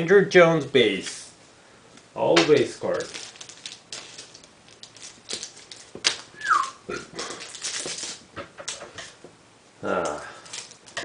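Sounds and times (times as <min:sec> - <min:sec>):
cards rustling and clicking: 0:02.4 - 0:09.2, 0:10.0 - 0:11.0.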